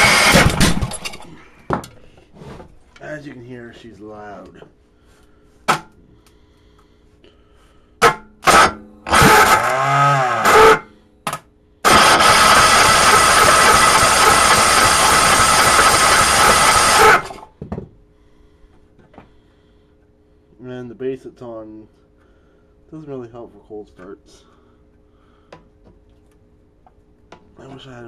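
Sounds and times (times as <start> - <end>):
electric starter cranking engine: 0.0 - 1.2, 8.4 - 10.8, 11.8 - 17.5.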